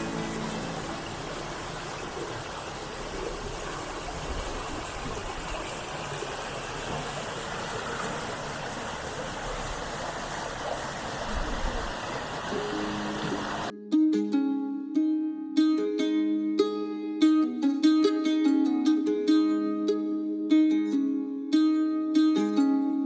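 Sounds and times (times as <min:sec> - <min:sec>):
running water rushing: 0:00.0 - 0:13.7.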